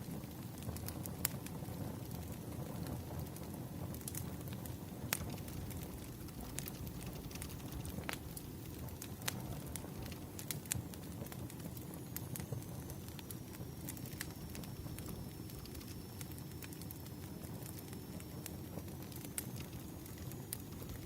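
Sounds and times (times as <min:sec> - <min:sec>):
wood fire crackling: 0:00.0 - 0:21.0
low steady rumble: 0:03.9 - 0:11.9, 0:12.5 - 0:16.3, 0:19.2 - 0:21.0.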